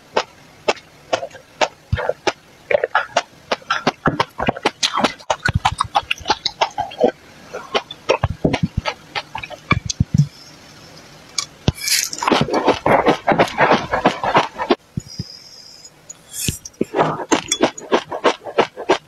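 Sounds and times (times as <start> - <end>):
chewing crunchy food: 0.1 - 10.3, 11.4 - 15.2, 16.4 - 19.0.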